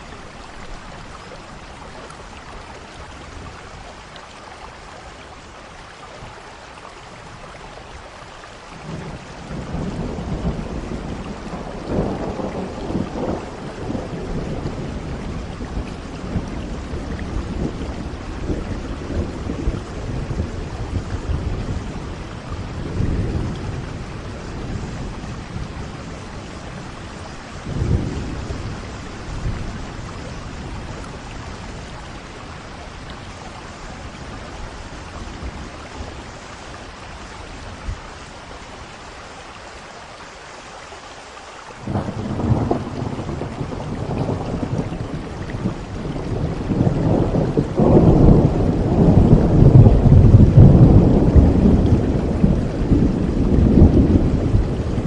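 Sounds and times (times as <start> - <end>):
steady rainfall: 0.0 - 55.0
thunder rumbling: 8.8 - 38.1, 41.8 - 55.0.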